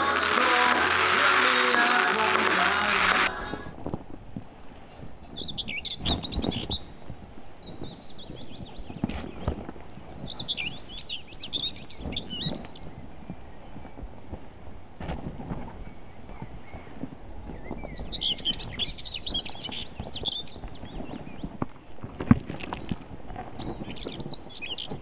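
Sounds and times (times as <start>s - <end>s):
outdoor background noise: 0.0s - 25.0s
songbirds chirping and trilling: 4.9s - 25.0s.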